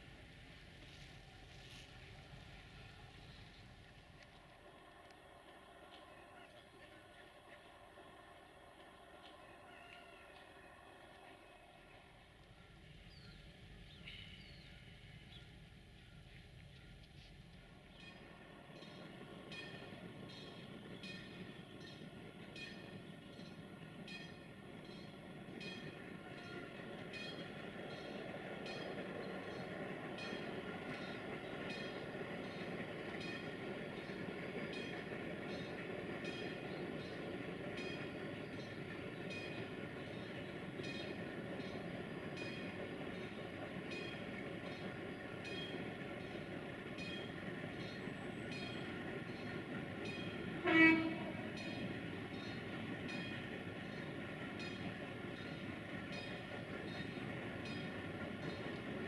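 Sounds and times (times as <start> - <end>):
train rumbling: 0.0 - 59.0
train horn blast: 50.6 - 51.6.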